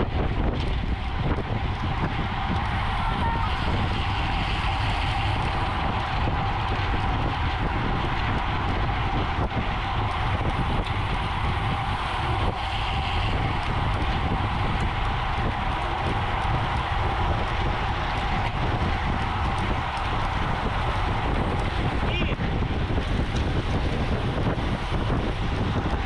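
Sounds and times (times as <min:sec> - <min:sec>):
wind rushing over microphone: 0:00.0 - 0:26.0
tyres hissing on road: 0:02.4 - 0:08.8, 0:10.6 - 0:22.1.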